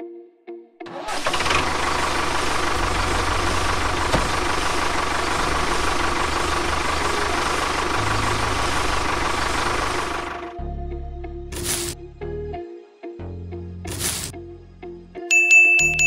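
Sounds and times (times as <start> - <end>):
tractor engine chugging: 0.9 - 10.6.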